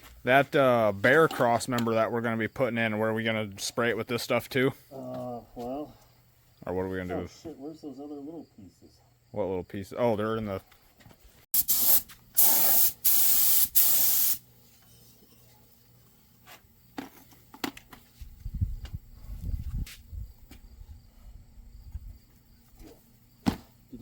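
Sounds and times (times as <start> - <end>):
paint spray gun hissing: 11.6 - 14.4.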